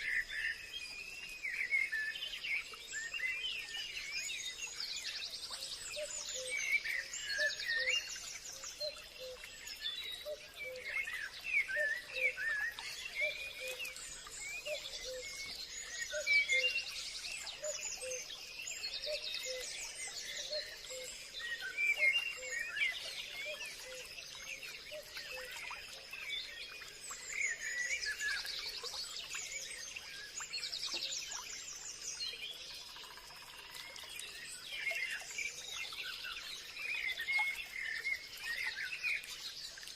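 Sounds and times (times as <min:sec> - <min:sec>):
faint high insect hum: 0:00.0 - 0:39.9.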